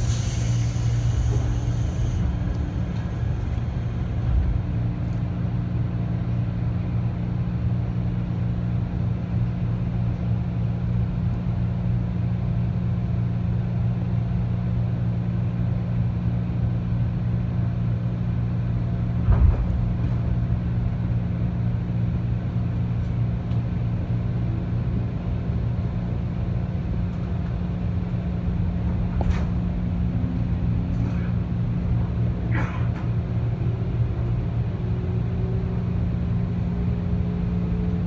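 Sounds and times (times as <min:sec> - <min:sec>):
electric train hum: 0:00.0 - 0:38.0
thump: 0:19.2 - 0:19.9.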